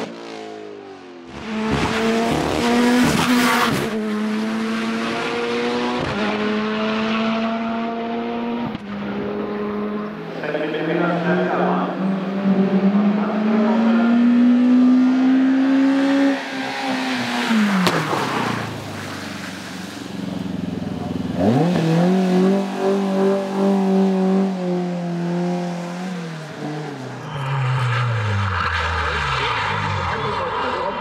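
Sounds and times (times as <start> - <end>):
racing car engines at full throttle: 0.0 - 31.0.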